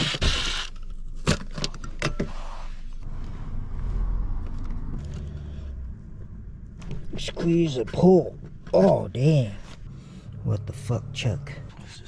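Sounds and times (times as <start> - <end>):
low rumble: 3.0 - 8.8.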